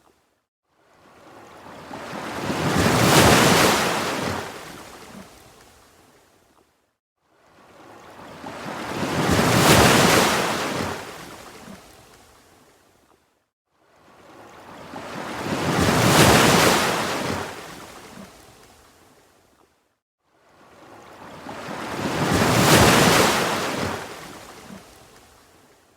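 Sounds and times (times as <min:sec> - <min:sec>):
ocean waves breaking: 0:01.0 - 0:05.4, 0:07.6 - 0:11.8, 0:14.0 - 0:18.6, 0:20.6 - 0:25.4.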